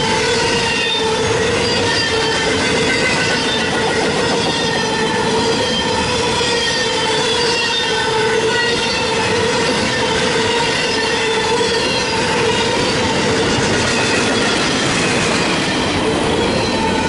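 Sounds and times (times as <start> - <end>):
freight train rumbling on rails: 0.0 - 17.0.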